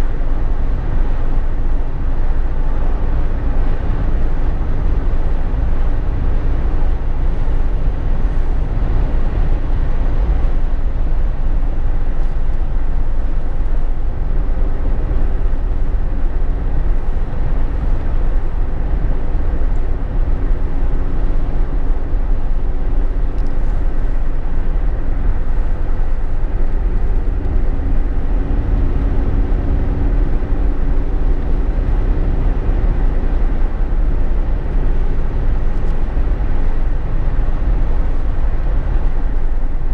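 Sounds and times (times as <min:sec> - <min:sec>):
faint engine hum: 0:00.0 - 0:39.9
road and wind noise rumble: 0:00.0 - 0:39.9.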